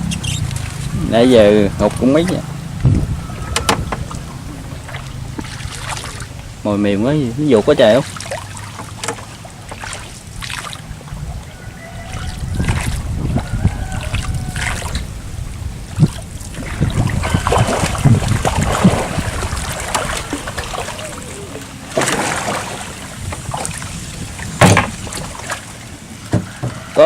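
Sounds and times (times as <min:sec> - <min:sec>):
water trickling and splashing: 0:00.0 - 0:27.0
irregular knocks: 0:03.4 - 0:04.2.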